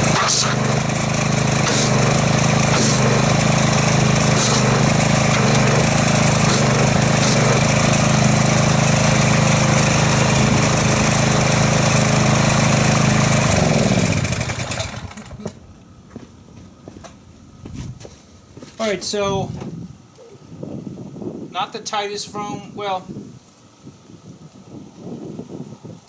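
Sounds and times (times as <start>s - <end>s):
pressure washer engine running: 0.0s - 15.6s
water spray hissing: 1.6s - 3.2s, 4.2s - 7.7s.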